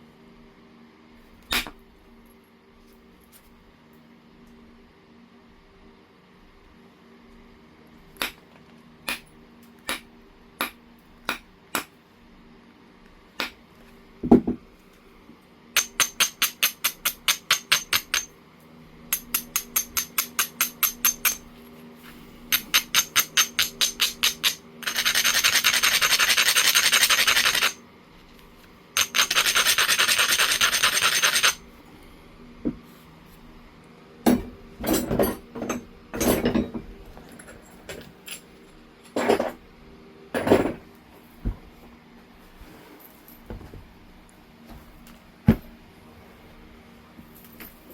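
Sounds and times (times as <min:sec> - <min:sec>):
stone grinding: 0:29.0 - 0:31.6
stone scraping back and forth: 0:29.0 - 0:31.6.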